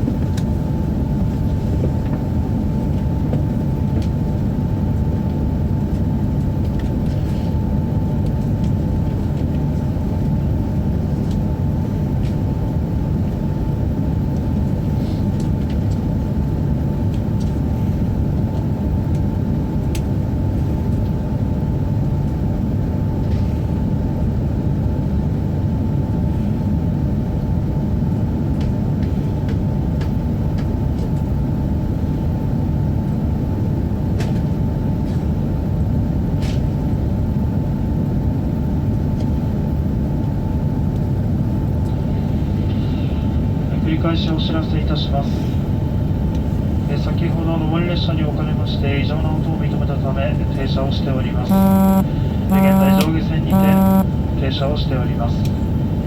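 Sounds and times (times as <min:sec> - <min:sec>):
faint steady hum: 0:46.9 - 0:55.6.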